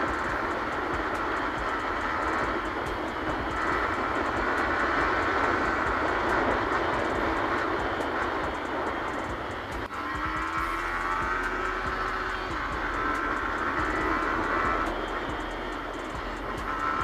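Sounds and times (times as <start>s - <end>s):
motorcycle engine running: 0.0s - 17.0s
road and wind noise: 0.0s - 17.0s.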